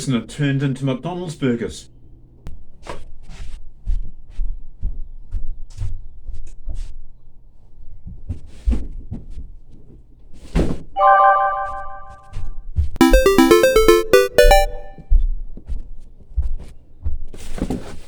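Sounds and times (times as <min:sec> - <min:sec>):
held electronic chord: 0:13.0 - 0:15.0.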